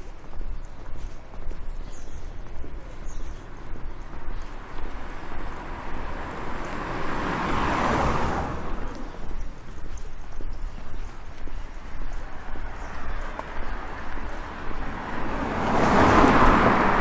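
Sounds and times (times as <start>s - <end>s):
footsteps: 0.0s - 17.0s
car passing by: 3.0s - 10.1s, 12.2s - 17.0s.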